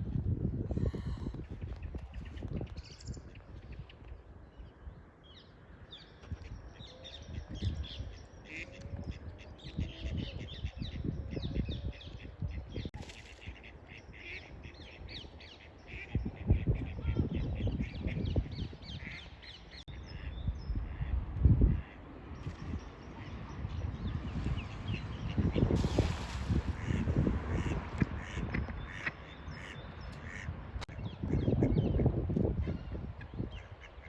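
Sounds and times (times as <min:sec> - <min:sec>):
flock of birds chirping: 0:21.8 - 0:34.0.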